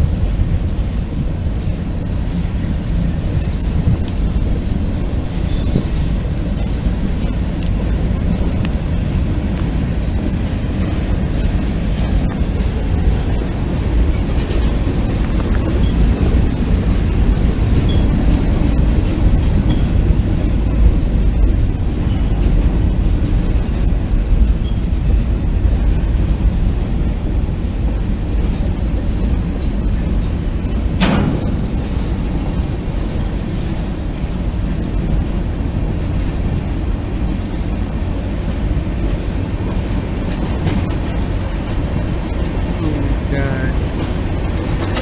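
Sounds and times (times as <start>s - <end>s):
freight train cars rumbling past: 0.0s - 45.0s
sharp bang: 31.0s - 32.0s.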